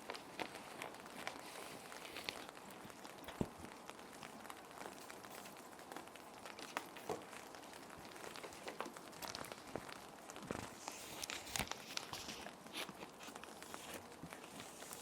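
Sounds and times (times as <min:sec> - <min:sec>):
gentle rain hiss: 0:00.0 - 0:15.0
plastic sheets crinkling: 0:00.0 - 0:15.0.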